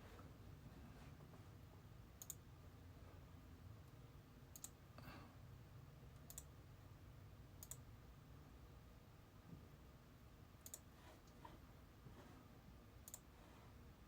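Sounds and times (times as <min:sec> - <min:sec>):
low room hum: 0:00.0 - 0:14.0
faint sharp clicks: 0:06.2 - 0:06.5, 0:07.6 - 0:07.8.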